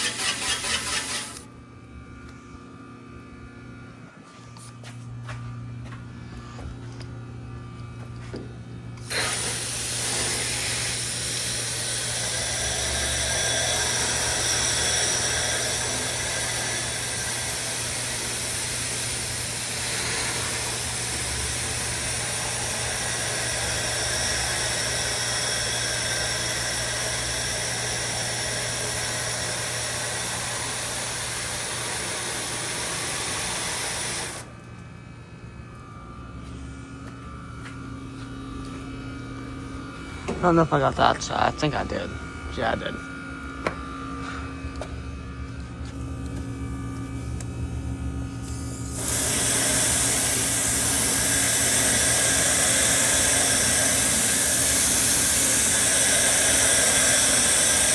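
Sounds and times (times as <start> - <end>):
water spraying from hose: 0.0 - 1.4, 9.0 - 34.5, 48.5 - 57.9
steady low hum: 0.6 - 33.5, 34.3 - 57.9.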